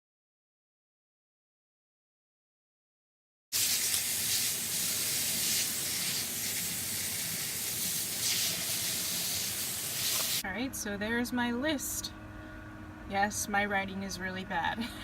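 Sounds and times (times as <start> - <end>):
water splashing on leaves: 3.6 - 10.4.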